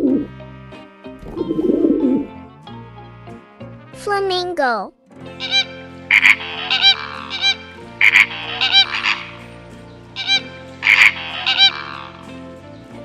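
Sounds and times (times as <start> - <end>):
flamingo honking calls: 0.0 - 2.3, 5.3 - 12.8
background music: 0.0 - 13.0.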